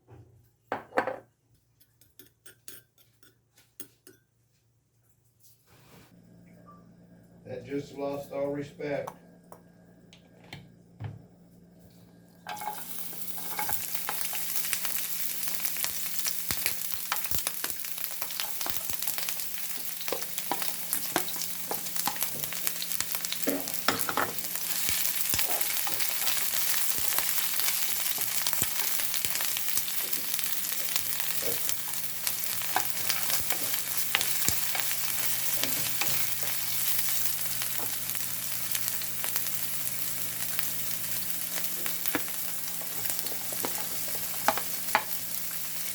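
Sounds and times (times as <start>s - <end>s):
food sizzling in hot oil: 12.4s - 45.9s.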